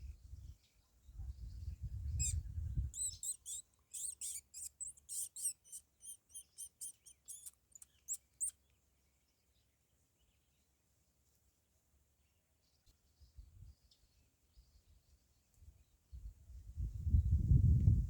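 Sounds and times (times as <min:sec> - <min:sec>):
small birds chirping: 0:00.0 - 0:10.7.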